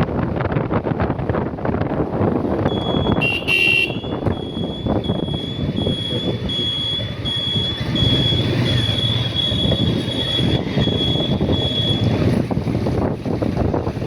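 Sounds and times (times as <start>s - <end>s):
motorcycle engine and wind rumble: 0.0s - 14.0s.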